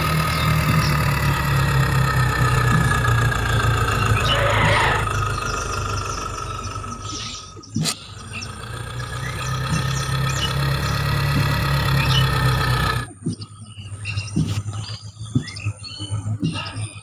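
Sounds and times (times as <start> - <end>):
small diesel water pump running: 0.0 - 14.8
faint bird chirps: 0.0 - 17.0.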